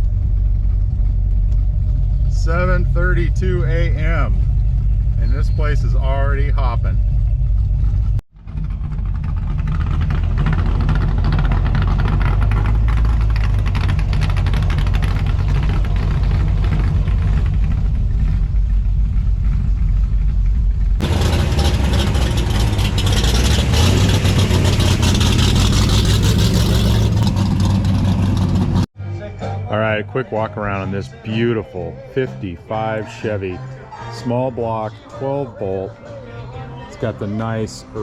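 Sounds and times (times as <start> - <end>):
car engine rumbling: 0.0 - 28.9.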